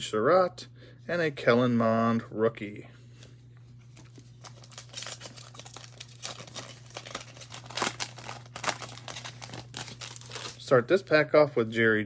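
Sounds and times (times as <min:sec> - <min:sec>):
foil wrapper crinkling and tearing: 0:04.0 - 0:10.7.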